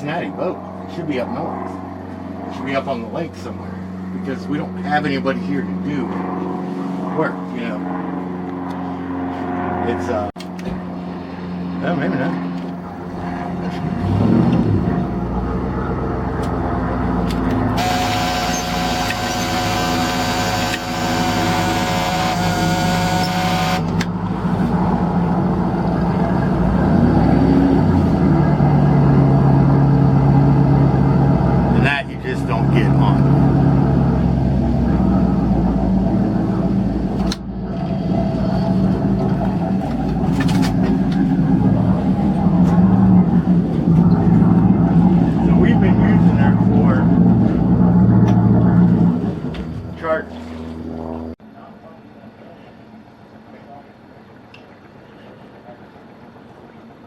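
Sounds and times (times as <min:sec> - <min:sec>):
engine running: 0:00.0 - 0:57.0
motor running: 0:17.1 - 0:24.6.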